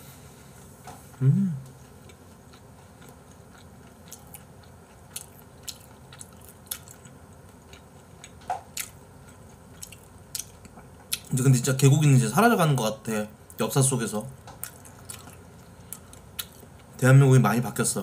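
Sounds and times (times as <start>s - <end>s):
wet chewing mouth sounds: 1.6s - 11.3s.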